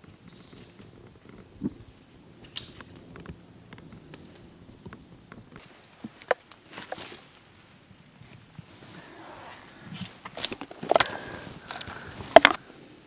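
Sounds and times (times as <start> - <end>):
faint rustling: 2.8 - 12.6.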